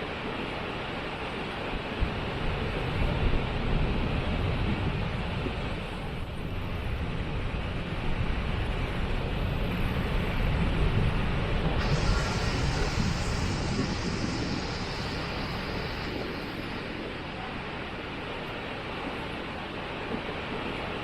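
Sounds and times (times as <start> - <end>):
waterfall rushing: 11.8 - 19.5.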